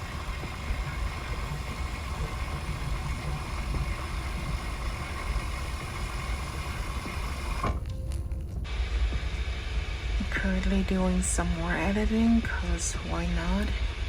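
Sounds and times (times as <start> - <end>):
faint steady whine: 0.0 - 14.0
low mechanical rumble: 0.0 - 14.0.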